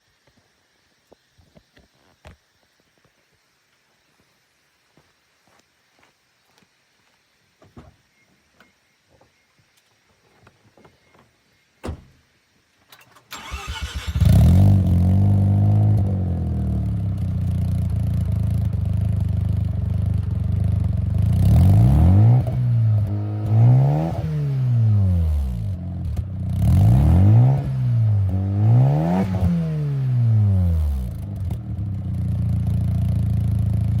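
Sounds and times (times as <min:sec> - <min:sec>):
starter cranking: 0:13.3 - 0:14.4
rotary engine idling and revving: 0:13.4 - 0:34.0.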